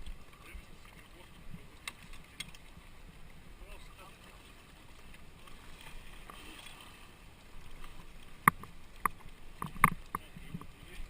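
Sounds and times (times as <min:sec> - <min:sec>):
low wash of water: 0:00.0 - 0:11.0
paddle knocking on kayak hull: 0:08.4 - 0:10.7.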